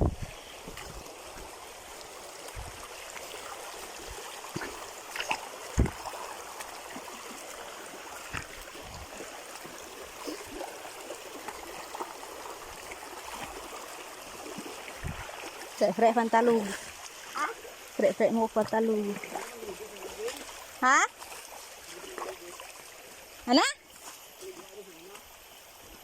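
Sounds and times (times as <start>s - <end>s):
flowing water: 0.0s - 26.0s
short knocks and thumps: 5.7s - 6.0s.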